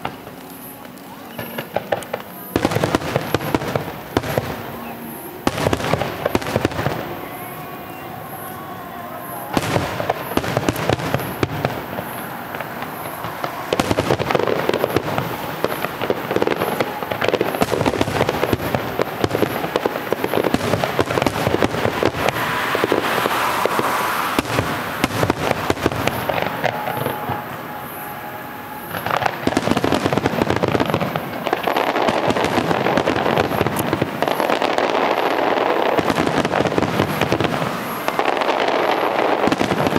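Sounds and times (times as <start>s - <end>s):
fireworks bursting and crackling: 0.0s - 39.9s.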